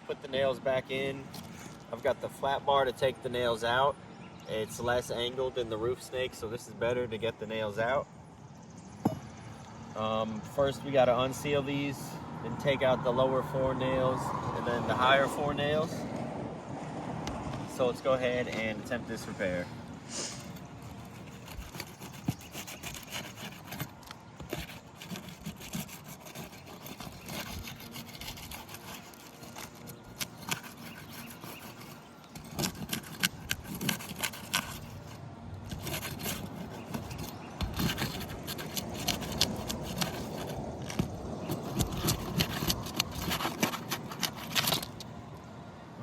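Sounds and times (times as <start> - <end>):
flat bar scraping under shingles: 0.3 - 3.9, 12.8 - 16.0, 17.6 - 45.1.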